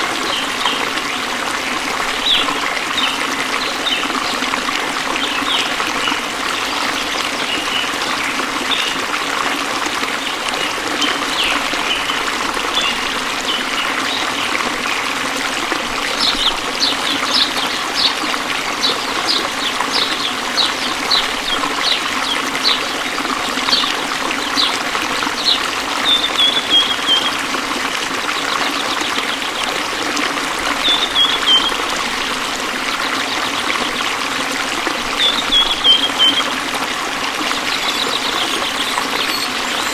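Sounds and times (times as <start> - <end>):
waterfall rushing: 0.0 - 39.9
bird calling: 24.5 - 27.4, 35.2 - 36.6, 37.5 - 39.9.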